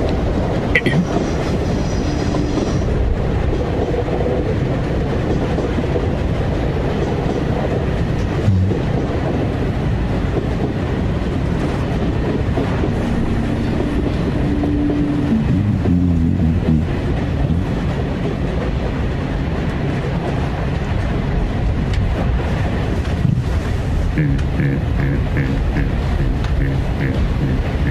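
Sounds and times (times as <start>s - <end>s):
train rumbling on rails: 0.0s - 27.9s
held tones: 12.8s - 16.3s.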